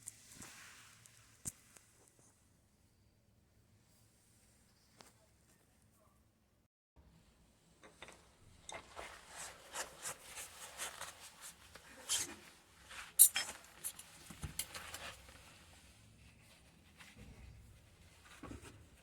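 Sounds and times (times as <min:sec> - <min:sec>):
rubbing and scraping on parts: 0:07.8 - 0:15.7.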